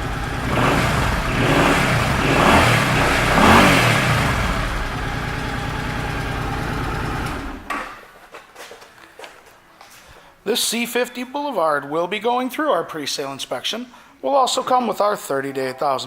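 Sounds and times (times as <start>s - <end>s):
motorcycle engine idling and revving: 0.0s - 7.8s.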